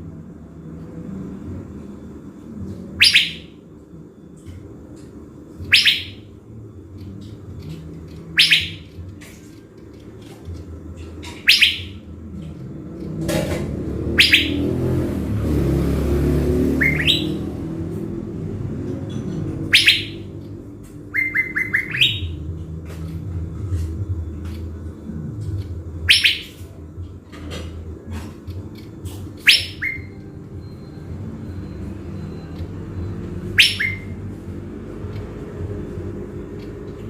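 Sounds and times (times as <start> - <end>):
bird sharp whistled notes: 3.0 - 3.6, 5.7 - 6.3, 8.4 - 8.9, 11.3 - 12.0, 14.1 - 14.8, 16.8 - 17.5, 19.7 - 20.3, 21.1 - 22.4, 26.1 - 26.6, 29.4 - 31.0, 33.1 - 34.2.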